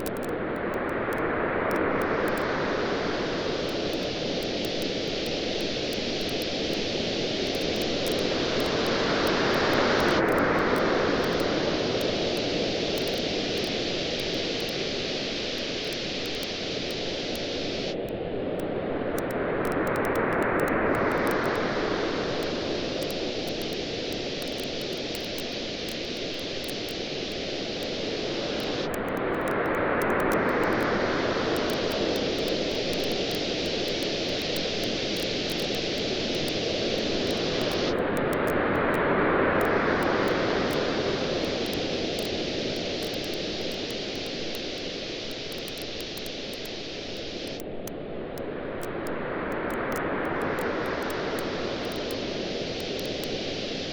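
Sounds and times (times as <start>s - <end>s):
ocean waves on shore: 1.3s - 19.0s, 20.8s - 24.4s, 25.6s - 28.9s, 29.7s - 53.9s
campfire crackling: 31.6s - 38.0s, 40.0s - 47.8s.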